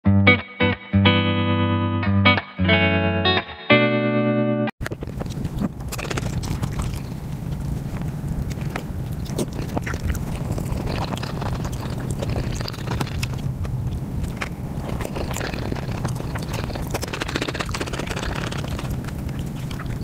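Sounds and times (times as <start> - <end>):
chewing with wet mouth smacks: 4.8 - 20.0
steady low hum: 4.8 - 20.0.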